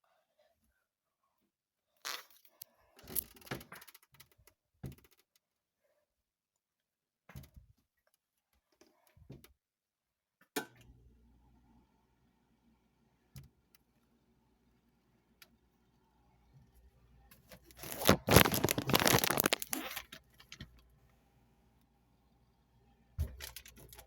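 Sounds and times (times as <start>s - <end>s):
handling clicks and rustling: 17.6s - 20.8s.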